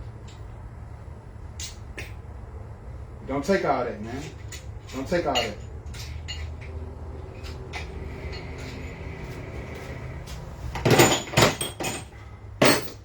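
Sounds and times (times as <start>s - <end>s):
metal parts clattering: 10.8s - 13.0s.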